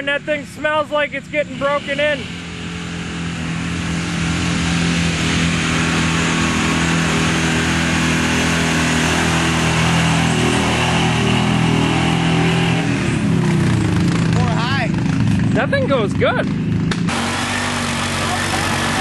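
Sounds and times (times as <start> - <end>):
truck engine at high revs: 0.0 - 19.0.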